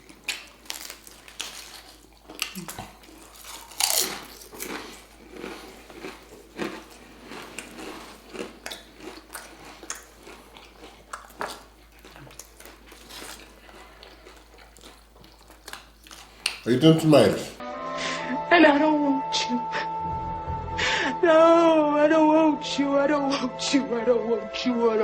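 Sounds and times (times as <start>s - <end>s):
chewing mouth sounds: 0.0s - 16.8s
crunchy bites of food: 0.0s - 17.3s.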